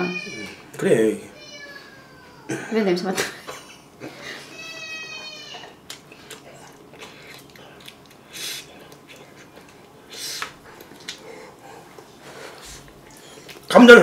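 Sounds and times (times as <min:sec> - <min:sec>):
wet chewing clicks: 0:05.8 - 0:12.1
short hissing breaths: 0:08.3 - 0:08.8, 0:10.0 - 0:10.6.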